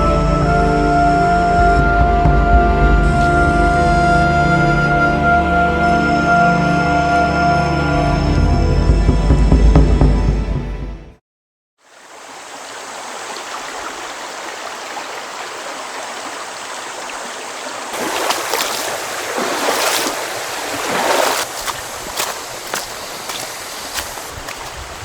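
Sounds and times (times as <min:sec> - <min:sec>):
river water flowing: 0:11.8 - 0:25.0.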